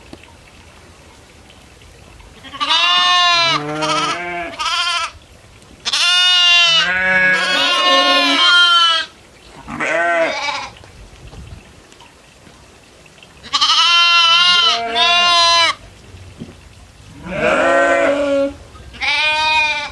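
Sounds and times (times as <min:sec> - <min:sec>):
goats bleating: 0:02.4 - 0:05.1, 0:05.8 - 0:10.8, 0:13.4 - 0:15.8, 0:17.2 - 0:19.9.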